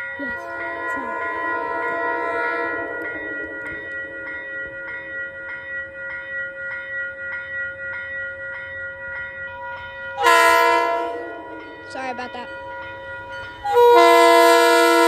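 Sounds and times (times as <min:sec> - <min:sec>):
railroad crossing bell ringing: 0:00.0 - 0:15.0.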